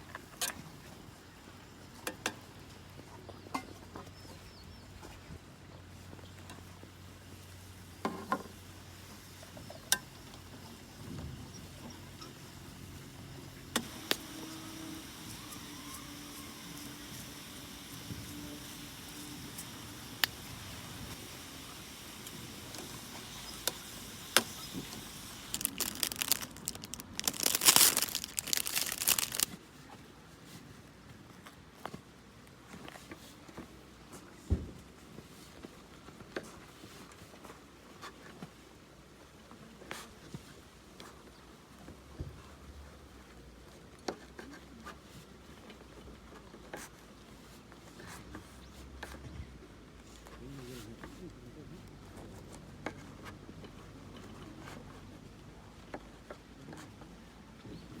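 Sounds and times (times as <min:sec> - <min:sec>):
faint steady background noise: 0:00.0 - 0:58.0
paper or plastic crinkling: 0:24.8 - 0:29.6
small objects clicking and tapping: 0:25.5 - 0:29.6.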